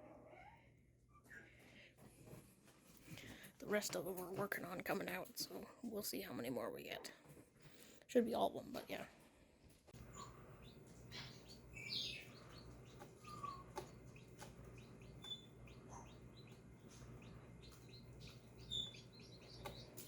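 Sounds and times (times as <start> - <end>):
low steady hum: 0.0 - 20.0
chicks peeping: 9.9 - 20.0.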